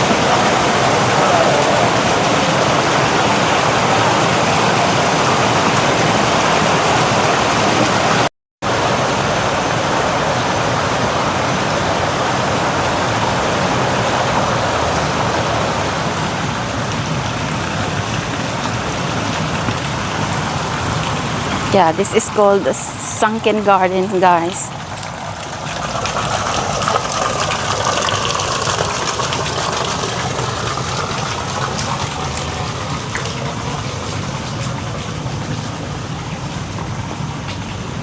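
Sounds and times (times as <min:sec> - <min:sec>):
falling and running water: 0:00.0 - 0:38.0.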